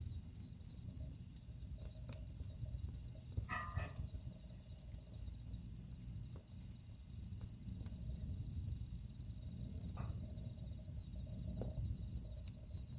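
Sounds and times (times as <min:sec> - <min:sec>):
fire crackles and pops: 0:00.0 - 0:12.9
wood fire burning: 0:00.0 - 0:12.9.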